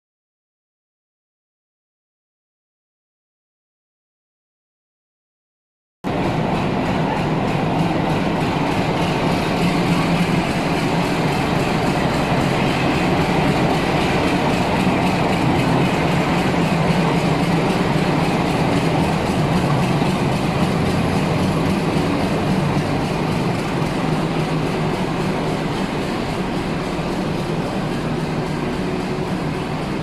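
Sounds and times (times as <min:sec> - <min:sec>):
train wheel and track noise: 0:06.1 - 0:30.0.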